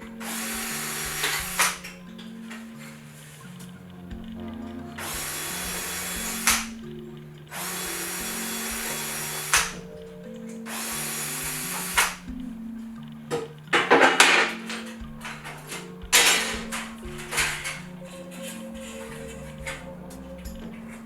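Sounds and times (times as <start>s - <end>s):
handheld power tool running: 0.0s - 3.4s, 4.1s - 12.6s, 13.8s - 21.0s
background music: 0.0s - 21.0s
sharp click: 6.4s - 6.7s.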